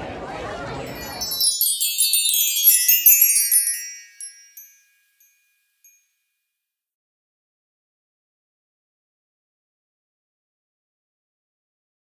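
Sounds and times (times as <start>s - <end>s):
cascade of bell-like chimes: 0.9s - 5.4s.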